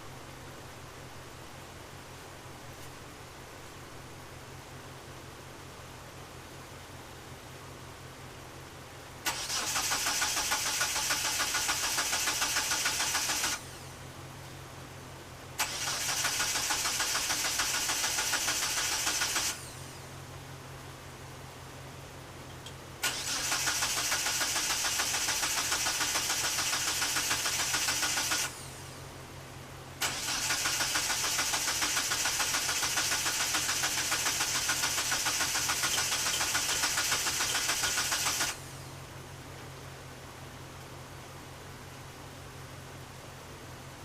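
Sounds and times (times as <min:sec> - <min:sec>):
starter cranking car engine: 0:09.2 - 0:13.8, 0:15.6 - 0:19.9, 0:23.0 - 0:28.8, 0:30.0 - 0:38.8.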